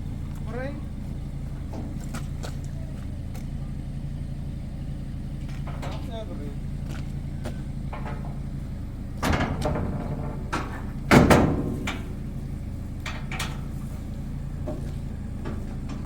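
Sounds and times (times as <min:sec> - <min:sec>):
engine idling: 0:00.0 - 0:16.0
knocks and clanks: 0:05.3 - 0:16.0.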